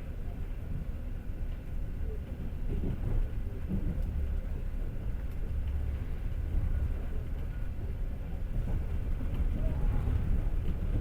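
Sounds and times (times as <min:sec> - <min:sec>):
train wheels rumbling: 0:02.6 - 0:11.0.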